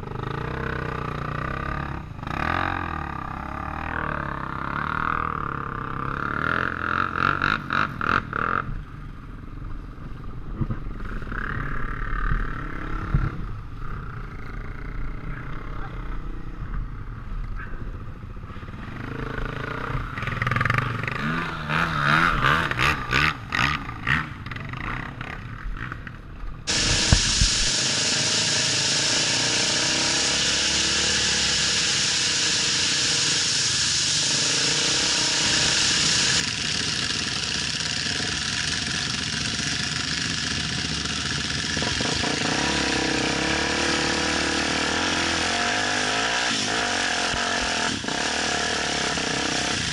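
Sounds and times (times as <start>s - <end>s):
motorcycle engines revving: 0.0s - 49.9s
rushing noise: 26.7s - 49.9s.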